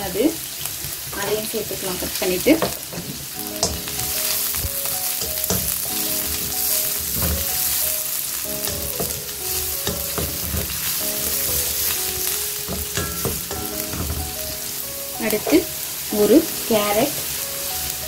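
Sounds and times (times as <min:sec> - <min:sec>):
vegetables sizzling in hot oil: 0:00.0 - 0:18.0
wooden spatula stirring and scraping: 0:02.6 - 0:17.9
background music: 0:03.3 - 0:18.0
spatula knocking against pan: 0:03.6 - 0:05.8, 0:07.0 - 0:07.6, 0:08.6 - 0:11.9, 0:12.6 - 0:14.4.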